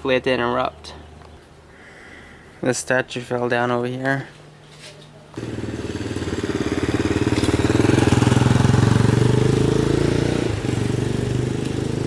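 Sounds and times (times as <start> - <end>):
vehicle engine passing: 5.4 - 12.0.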